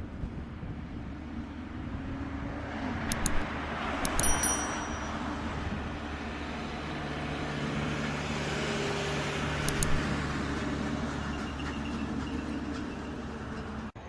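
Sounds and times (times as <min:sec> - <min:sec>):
brief clicks: 0:03.0 - 0:03.4, 0:04.0 - 0:05.4, 0:09.4 - 0:10.3.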